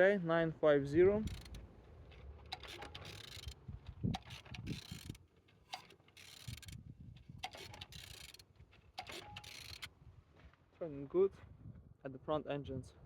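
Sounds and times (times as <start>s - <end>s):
engine turned by hand clicking: 1.2s - 9.9s.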